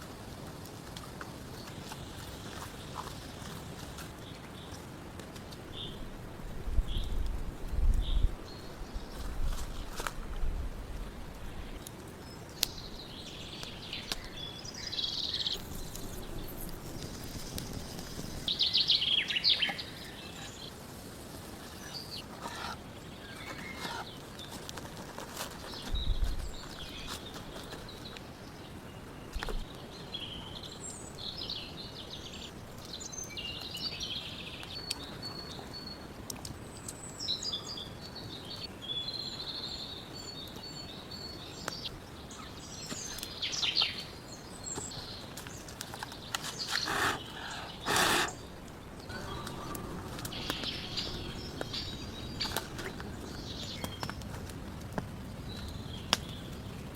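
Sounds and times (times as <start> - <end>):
songbirds chirping and singing: 11.4 - 56.8
faint clicks: 36.2 - 37.0.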